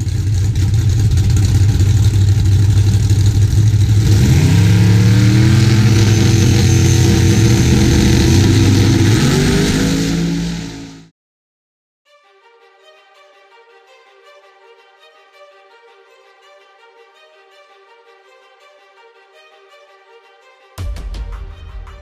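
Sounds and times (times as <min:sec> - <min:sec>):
loud car engine revving: 0:00.0 - 0:11.1.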